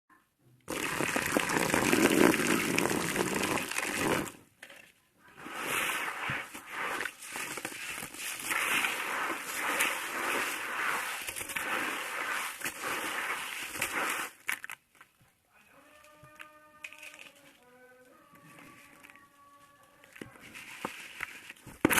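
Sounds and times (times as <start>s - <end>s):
sand bowl crunching and crumbling: 0.7s - 4.4s, 5.3s - 14.8s.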